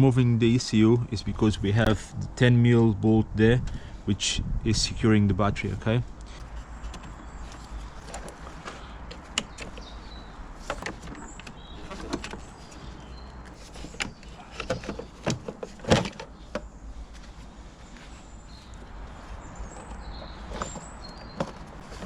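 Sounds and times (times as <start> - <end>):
plastic and metal parts knocking: 6.4 - 10.0, 10.6 - 13.0, 13.7 - 16.7, 19.8 - 22.0.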